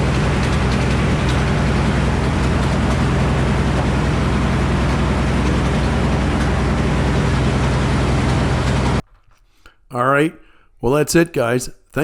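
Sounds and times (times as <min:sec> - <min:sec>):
sawmill engine humming: 0:00.0 - 0:09.0.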